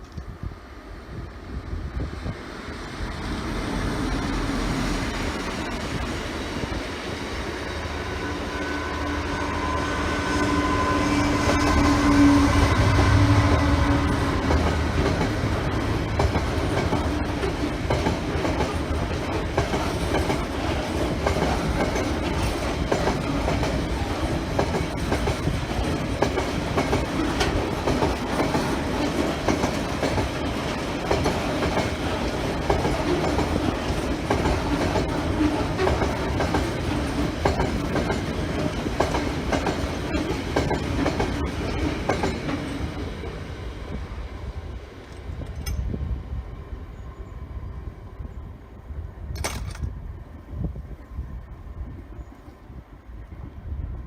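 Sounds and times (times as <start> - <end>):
train wagons rolling past: 0.0 - 54.0
clickety-clack over rail joints: 12.9 - 43.4, 45.0 - 46.0, 49.3 - 50.0.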